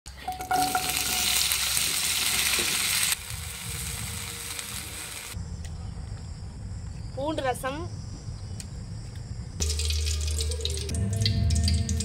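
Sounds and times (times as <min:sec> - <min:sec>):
food sizzling in hot oil: 0:00.4 - 0:05.4, 0:09.6 - 0:12.0
insect chirring: 0:03.1 - 0:12.0.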